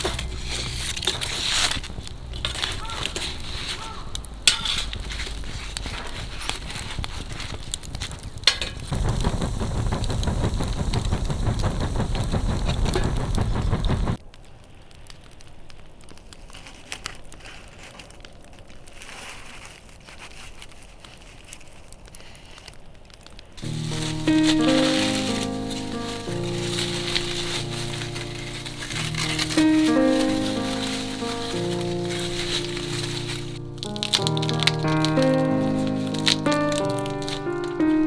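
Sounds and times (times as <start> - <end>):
low fire rumble: 0.0 - 14.2, 23.6 - 38.0
bonfire crackling: 0.0 - 16.1, 23.6 - 38.0.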